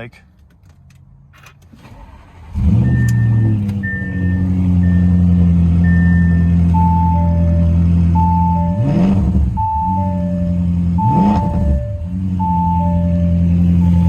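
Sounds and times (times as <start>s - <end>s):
car engine starting and idling: 0.3s - 14.0s
short electronic beeps: 2.8s - 5.2s, 5.8s - 14.0s.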